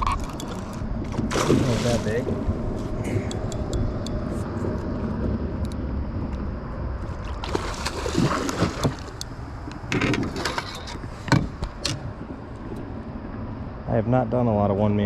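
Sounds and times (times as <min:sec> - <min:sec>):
water splashing and sloshing: 0:00.0 - 0:05.3, 0:06.9 - 0:12.6
low rumble: 0:00.0 - 0:10.2.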